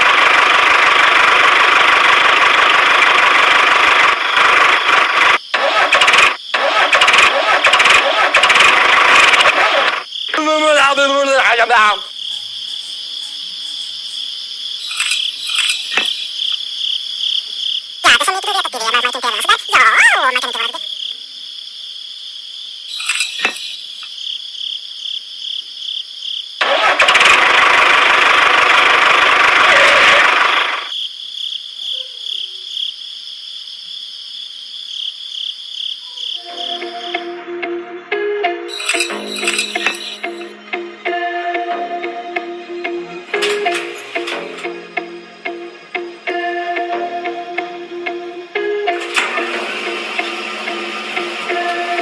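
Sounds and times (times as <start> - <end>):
crickets chirping: 5.4 - 7.2, 10.0 - 26.9, 30.9 - 48.9
music with a rattle: 14.8 - 16.6, 22.9 - 24.1, 38.7 - 40.9, 43.3 - 45.6, 48.6 - 52.0
voice-like call: 18.0 - 21.0.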